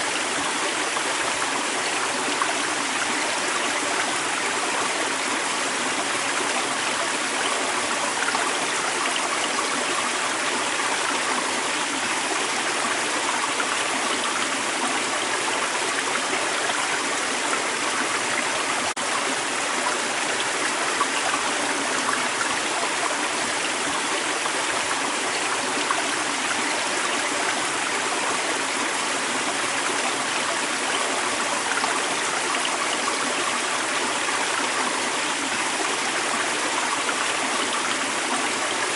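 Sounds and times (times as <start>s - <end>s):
creek water running over rocks: 0.0s - 38.9s.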